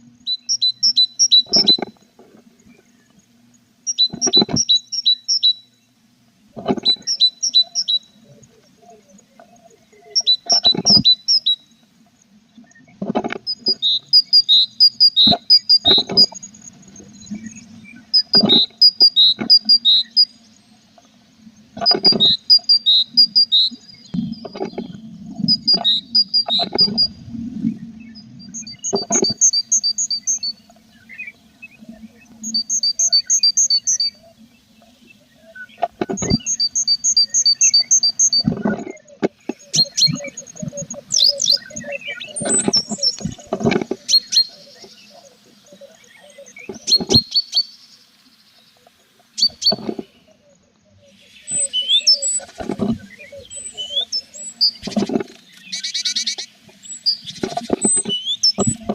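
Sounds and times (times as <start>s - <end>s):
nestlings chirping: 0.3s - 2.0s, 13.4s - 20.4s, 21.8s - 27.1s, 35.8s - 38.7s, 39.5s - 45.2s.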